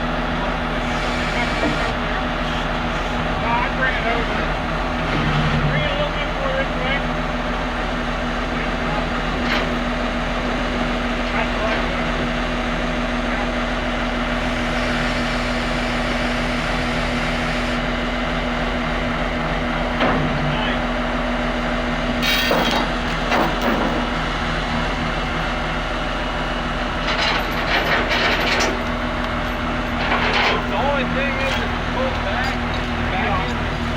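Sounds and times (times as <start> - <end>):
heavy machine engine running: 0.0 - 33.9
metal clanks and knocks: 20.0 - 20.6, 22.2 - 24.2, 27.0 - 33.9.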